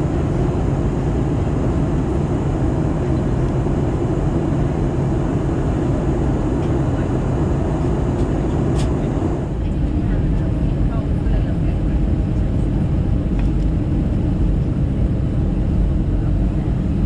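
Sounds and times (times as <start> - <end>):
aircraft cabin engine rush: 0.0 - 17.0.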